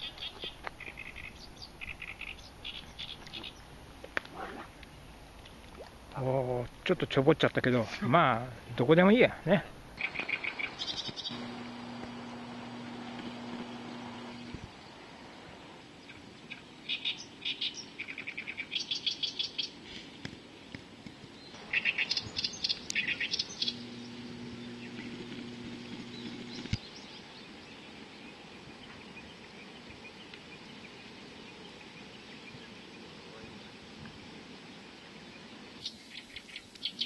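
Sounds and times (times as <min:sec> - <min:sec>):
birds chirping: 0:00.0 - 0:05.3, 0:07.6 - 0:37.0
low steady hum: 0:11.3 - 0:16.2, 0:21.6 - 0:29.7.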